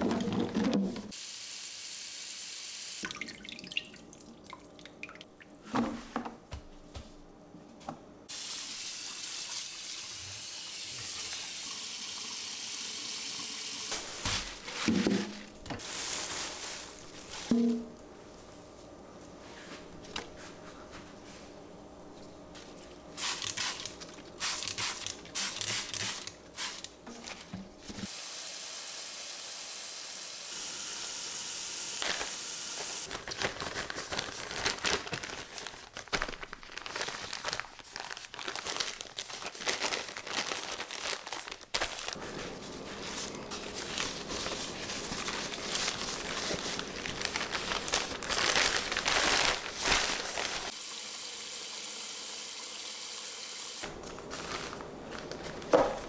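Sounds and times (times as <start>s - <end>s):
packaging crinkling: 14.0s - 17.5s, 32.0s - 50.7s.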